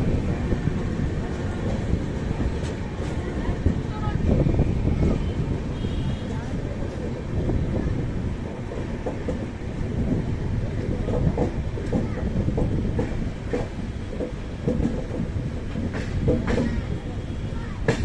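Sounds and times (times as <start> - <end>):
train coaches rumbling: 0.0 - 18.0
wheel clicks over rail joints: 10.8 - 17.0.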